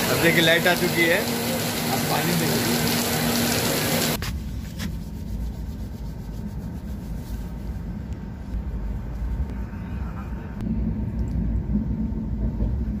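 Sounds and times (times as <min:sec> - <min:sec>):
train rumbling on track: 0:07.4 - 0:13.0.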